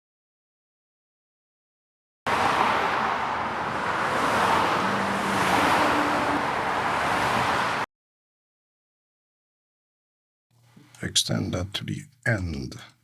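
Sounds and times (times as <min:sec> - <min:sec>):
cars passing by: 0:02.3 - 0:07.9.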